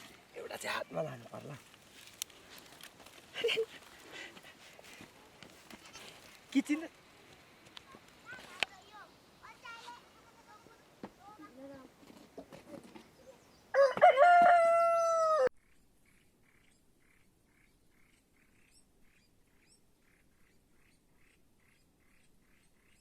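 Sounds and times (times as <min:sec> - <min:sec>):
small birds chirping: 0:00.0 - 0:11.9, 0:12.6 - 0:13.8, 0:15.6 - 0:23.0
rooster crowing: 0:13.7 - 0:15.5.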